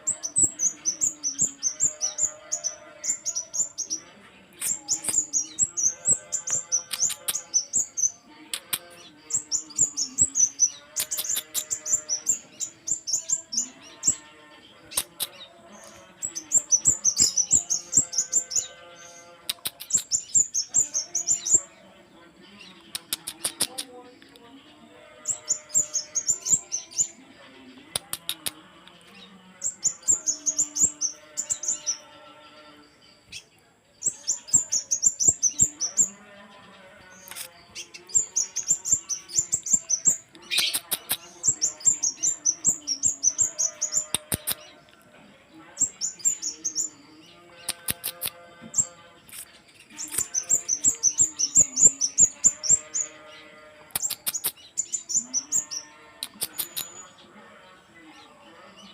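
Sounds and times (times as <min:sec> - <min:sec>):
bird high-pitched chirps: 0:47.6 - 0:53.2, 0:53.9 - 0:57.2.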